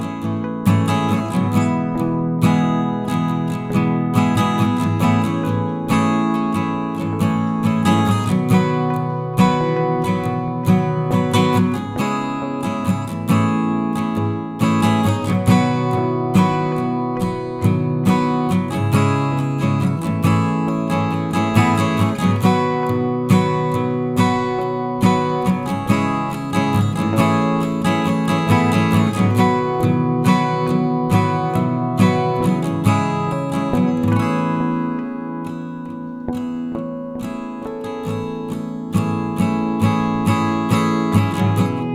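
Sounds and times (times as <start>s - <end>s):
acoustic guitar music: 0.0s - 41.9s.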